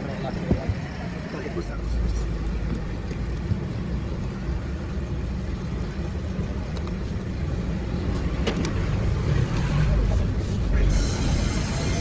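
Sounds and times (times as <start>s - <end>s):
engine rumbling: 0.0s - 12.0s.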